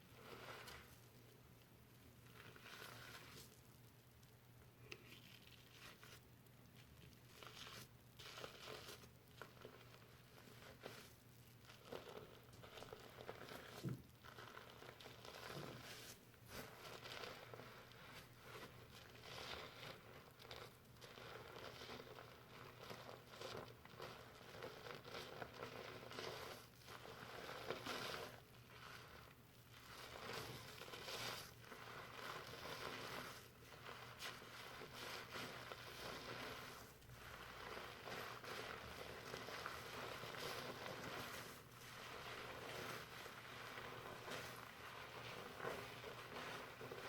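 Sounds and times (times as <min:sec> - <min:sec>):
shampoo foam crackling in hair: 0:22.5 - 0:47.0.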